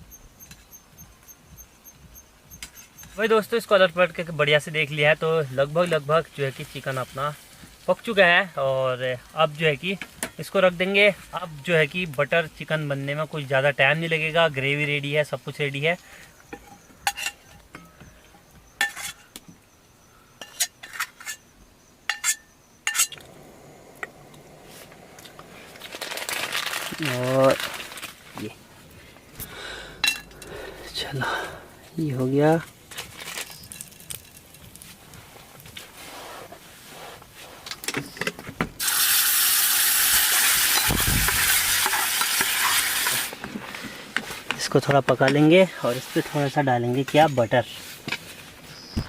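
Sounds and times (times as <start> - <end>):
crickets chirring: 0.0 - 36.0, 48.3 - 49.0
utensils clinking: 16.5 - 18.0, 30.0 - 30.8
metal utensil clinking on pan: 16.6 - 17.9, 22.1 - 23.3
food sizzling in hot pan: 38.8 - 43.3.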